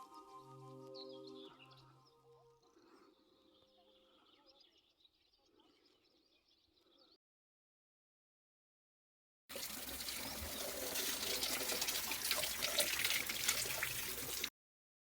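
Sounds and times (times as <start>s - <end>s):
running splashing water: 9.5s - 14.5s.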